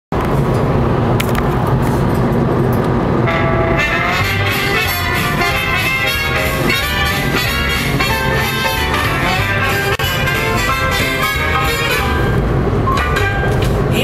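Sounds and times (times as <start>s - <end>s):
car road rumble: 0.1s - 14.0s
music playing: 3.3s - 14.0s.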